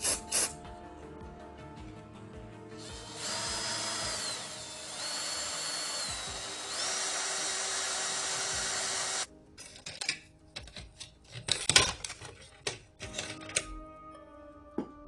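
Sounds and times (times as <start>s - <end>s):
power tool whining: 2.8s - 9.3s.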